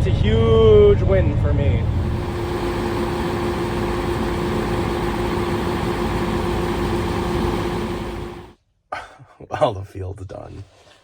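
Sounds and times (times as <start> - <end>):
truck engine droning: 1.8 - 8.6.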